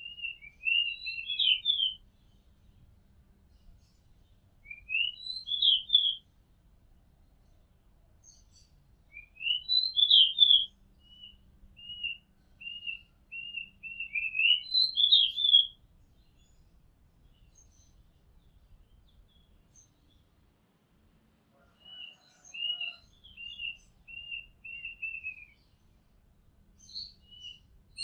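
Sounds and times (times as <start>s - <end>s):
magpie robin singing: 0.0s - 2.0s, 4.6s - 6.2s, 8.2s - 16.6s, 21.9s - 25.7s, 26.8s - 28.0s
faint distant bird chirps: 0.0s - 6.4s, 7.2s - 20.4s, 21.6s - 28.0s.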